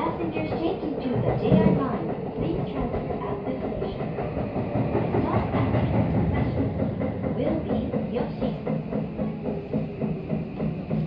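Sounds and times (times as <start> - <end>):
train running from inside: 0.0 - 11.0
wheels clattering on rail joints: 0.0 - 11.0.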